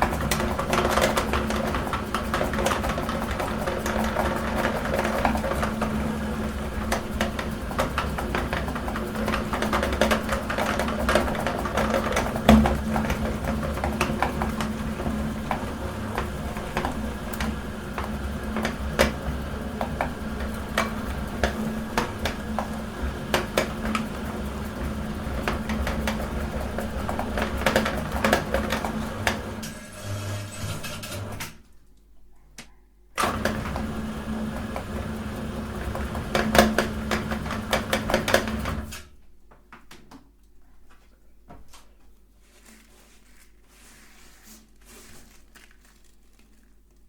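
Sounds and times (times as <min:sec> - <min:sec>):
meat grinder motor humming: 0:00.0 - 0:31.4, 0:33.2 - 0:38.9.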